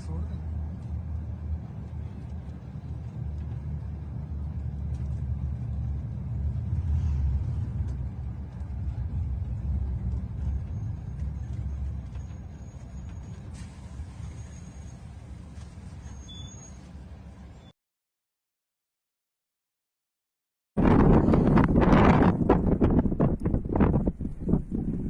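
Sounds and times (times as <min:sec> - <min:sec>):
wind buffeting microphone: 0:00.4 - 0:14.4, 0:20.8 - 0:25.0.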